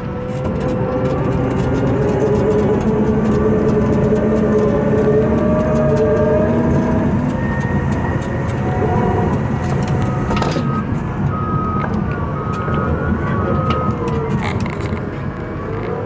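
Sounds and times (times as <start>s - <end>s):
bulldozer diesel engine running: 0.0s - 16.0s
backup alarm beeping: 1.3s - 14.2s.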